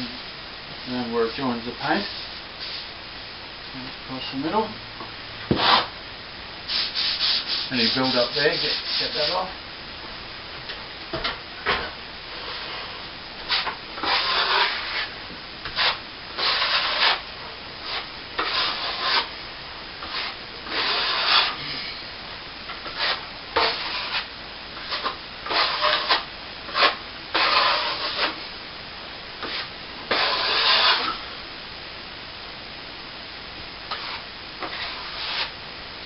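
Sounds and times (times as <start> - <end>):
trowel scraping plaster: 13.5 - 15.1, 15.7 - 17.2, 17.8 - 19.3, 20.0 - 21.6, 22.8 - 28.4, 29.4 - 31.2, 33.9 - 35.5.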